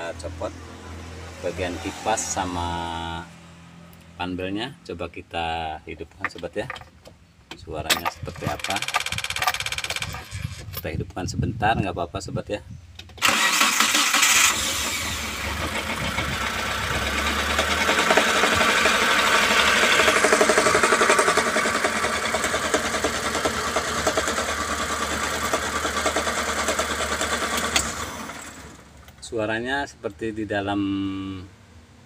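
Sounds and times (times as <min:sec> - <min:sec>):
engine cranking and starting: 0:07.9 - 0:10.7, 0:13.2 - 0:29.1
engine running: 0:13.2 - 0:29.2
rapid engine knocking: 0:15.7 - 0:27.6.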